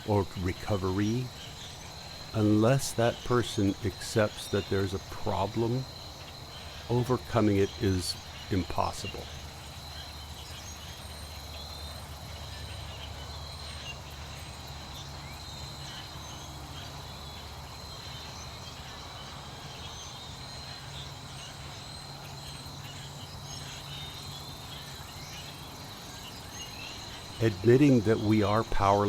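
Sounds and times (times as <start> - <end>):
faint chirps and calls: 0.0 - 29.0
low steady hum: 26.4 - 29.0.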